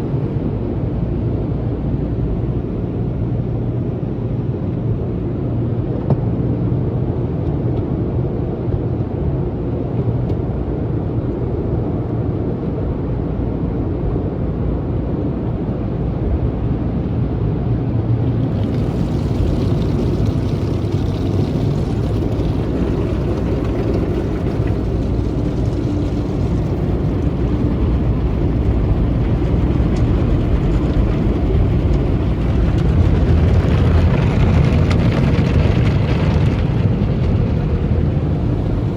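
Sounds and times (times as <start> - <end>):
car wash equipment rumbling: 0.0 - 9.3, 10.0 - 38.9
water on car: 18.1 - 38.9.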